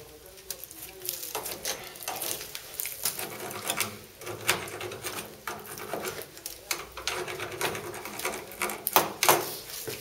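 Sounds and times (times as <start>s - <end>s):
tool scraping and clicking: 1.3s - 9.7s.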